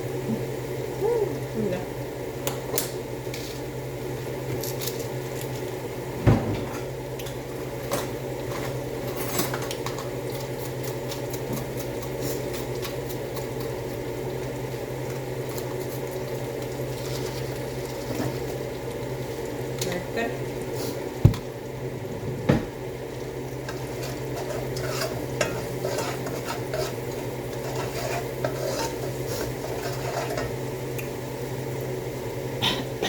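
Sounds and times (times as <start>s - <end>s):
steady low hum: 17.8s - 33.0s
utensil clinking and scraping pan: 23.6s - 30.6s.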